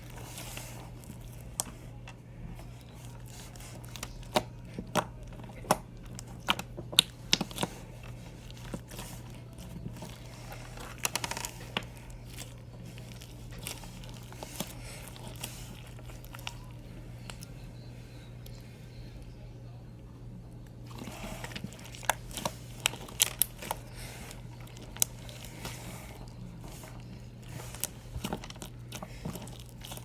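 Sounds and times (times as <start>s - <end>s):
slime popping and crackling: 3.8s - 16.6s, 21.4s - 25.5s.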